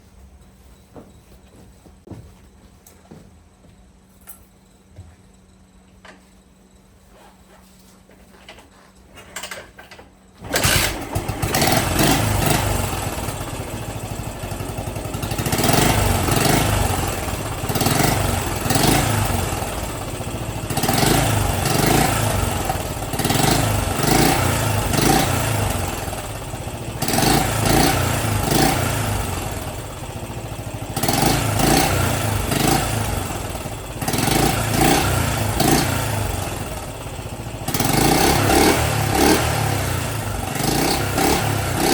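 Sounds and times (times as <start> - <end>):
motorcycle engine kick-started: 9.2 - 41.9
engine revving: 10.4 - 41.9.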